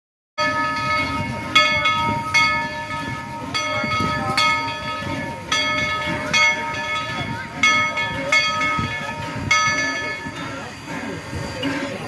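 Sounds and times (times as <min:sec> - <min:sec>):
locomotive bell ringing: 0:00.4 - 0:12.0
low rumble of train: 0:00.4 - 0:12.0.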